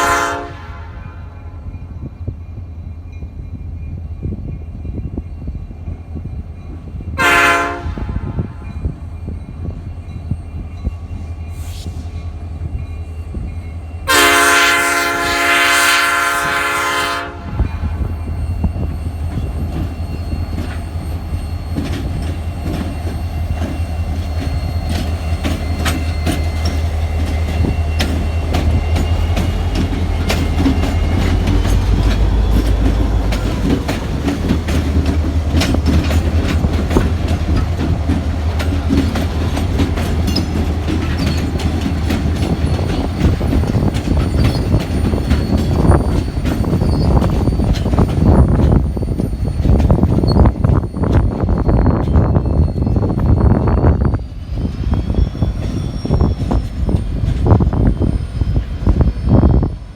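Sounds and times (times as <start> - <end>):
locomotive horn chord: 0.0 - 1.6, 7.2 - 8.7, 14.1 - 18.0
wheels clicking over rail joints: 19.3 - 53.2.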